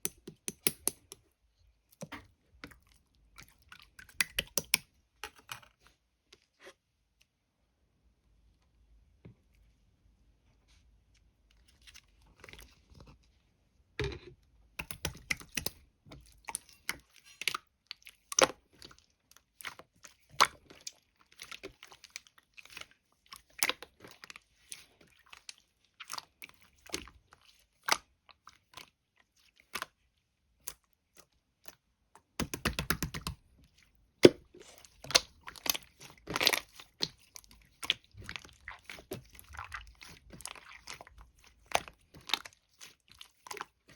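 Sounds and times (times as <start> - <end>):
wet chewing: 14.8 - 30.0, 30.6 - 43.9.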